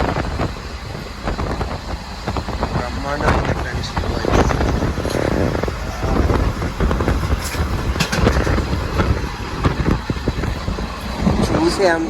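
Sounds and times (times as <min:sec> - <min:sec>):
train carriage rumble: 0:00.0 - 0:12.0
wheels clattering on track: 0:00.0 - 0:12.0.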